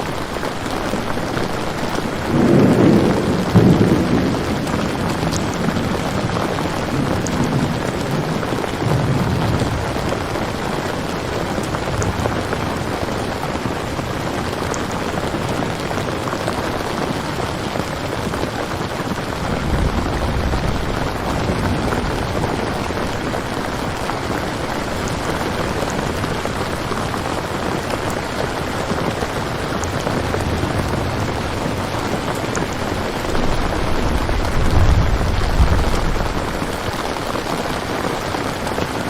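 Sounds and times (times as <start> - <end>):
heavy rain hiss: 0.0 - 39.0
low rumble: 19.4 - 23.4, 33.1 - 37.0.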